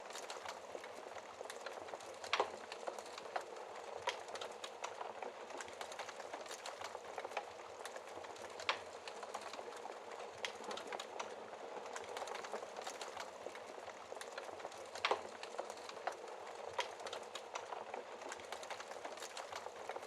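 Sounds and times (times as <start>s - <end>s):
fire popping: 0.0s - 20.0s
wood fire crackling: 0.0s - 20.0s.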